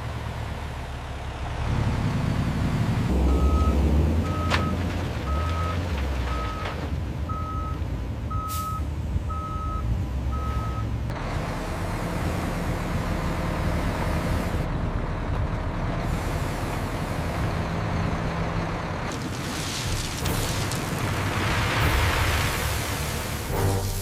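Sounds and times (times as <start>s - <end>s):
truck reversing alarm beeps: 3.2s - 10.9s.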